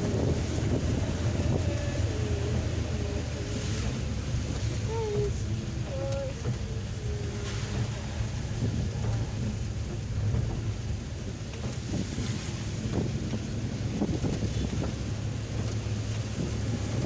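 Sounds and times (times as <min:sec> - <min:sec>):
engine and road rumble: 0:00.0 - 0:17.0
rain hissing on roof: 0:00.0 - 0:17.0.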